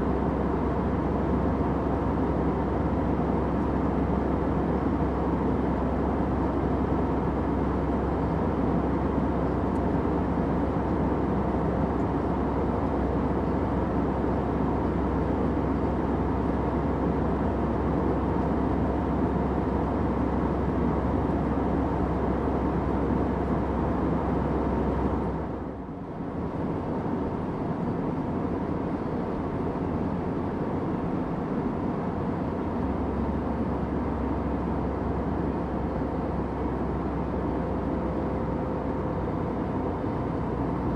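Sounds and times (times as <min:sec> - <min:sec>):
airliner cabin engine drone: 0:00.0 - 0:40.9.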